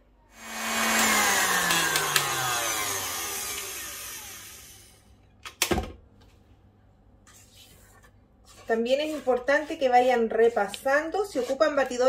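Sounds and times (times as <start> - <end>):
stand mixer motor whirring down: 0.4 - 5.0.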